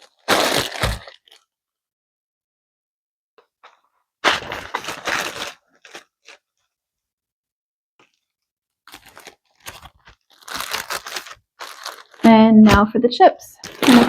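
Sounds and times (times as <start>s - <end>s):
plastic packaging crinkling: 0.0s - 1.5s, 3.6s - 6.7s, 8.0s - 13.0s, 13.6s - 14.0s.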